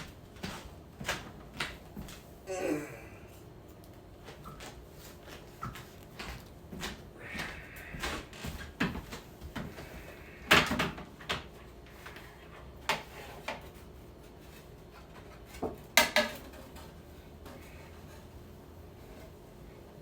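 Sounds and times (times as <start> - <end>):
kitchen items knocking and clattering: 10.5 - 11.6, 15.0 - 17.5.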